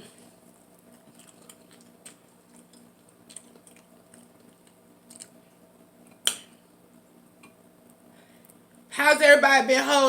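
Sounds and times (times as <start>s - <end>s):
faint steady hum: 0.0s - 10.0s
chewing and mouth clicks: 0.8s - 6.4s.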